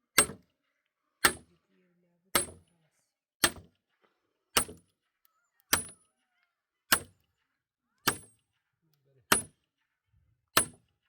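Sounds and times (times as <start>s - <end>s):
tool striking with metallic ring: 0.2s - 0.4s, 1.2s - 1.5s, 2.4s - 2.6s, 3.4s - 3.7s, 4.6s - 4.9s, 5.7s - 6.0s, 6.9s - 7.2s, 8.0s - 8.4s, 9.3s - 9.6s, 10.6s - 10.8s.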